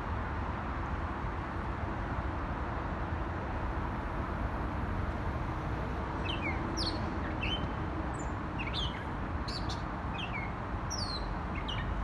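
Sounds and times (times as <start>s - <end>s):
distant traffic hum: 0.0s - 12.0s
songbird singing: 6.2s - 12.0s.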